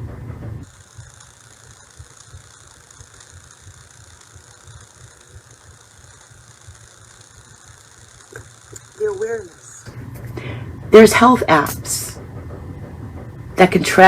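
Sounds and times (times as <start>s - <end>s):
constant hiss: 0.0s - 14.0s
low rumble: 9.8s - 14.0s.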